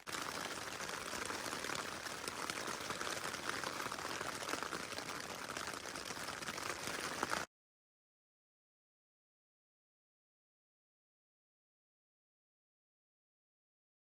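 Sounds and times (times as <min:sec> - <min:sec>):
rain pattering on a tent: 0:00.0 - 0:07.5.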